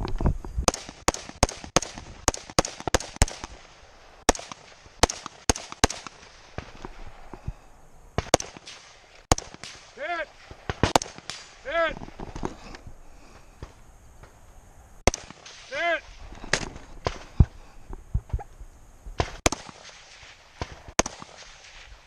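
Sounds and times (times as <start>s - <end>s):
gunshots: 0.7s - 7.2s, 8.2s - 12.2s, 15.0s - 17.3s, 19.2s - 22.0s.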